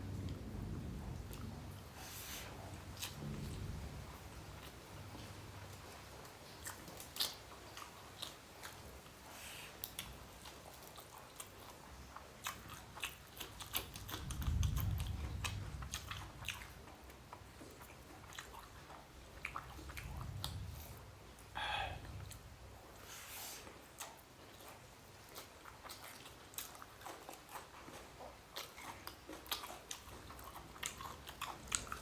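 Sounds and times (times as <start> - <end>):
low rumble: 0.0 - 4.7
wet chewing and mouth smacks: 4.3 - 32.0.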